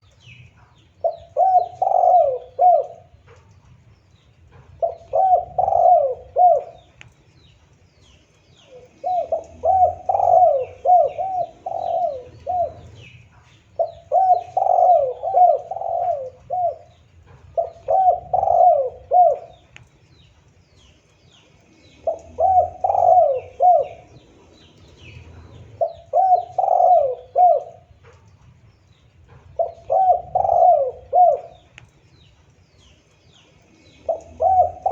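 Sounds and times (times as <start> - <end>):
small birds chirping: 0.0 - 34.9
dove cooing: 0.6 - 3.4, 4.5 - 7.0, 8.6 - 19.8, 21.8 - 28.2, 29.2 - 31.9, 33.7 - 34.9.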